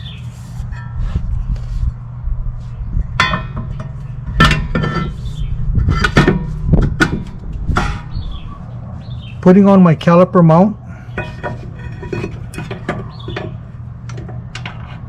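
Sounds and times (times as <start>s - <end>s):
steady low hum: 0.0s - 15.0s
sharp metallic knocks: 3.2s - 5.2s, 5.9s - 8.4s
metal brake parts clanking: 3.2s - 5.3s, 5.9s - 8.2s, 11.1s - 14.9s.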